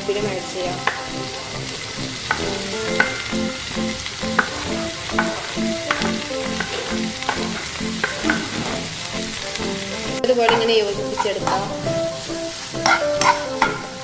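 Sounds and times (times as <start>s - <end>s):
onions sizzling in hot oil: 0.0s - 14.0s
soft rhythmic background music: 0.0s - 14.0s
spatula clicking against pan: 0.8s - 1.2s, 2.2s - 8.6s, 12.8s - 14.0s.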